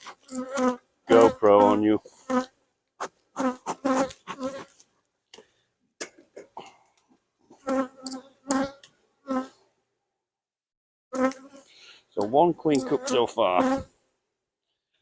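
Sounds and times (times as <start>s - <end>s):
honeybees buzzing: 0.2s - 2.5s, 11.2s - 13.9s.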